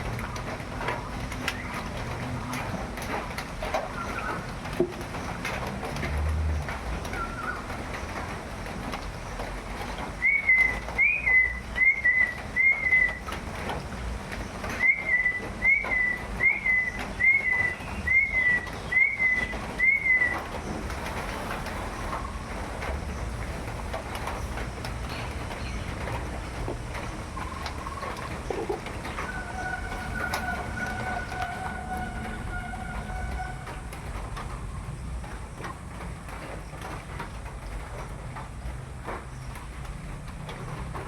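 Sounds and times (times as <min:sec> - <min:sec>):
bird whistling: 0:10.2 - 0:13.3, 0:14.8 - 0:20.5.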